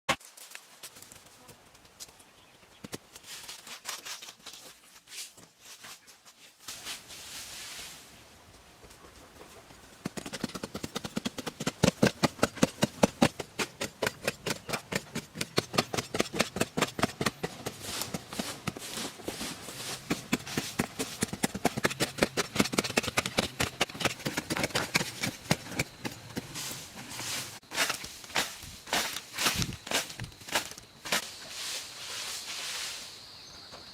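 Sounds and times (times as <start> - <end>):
rapid sharp knocks: 10.0 - 18.2, 20.1 - 26.1.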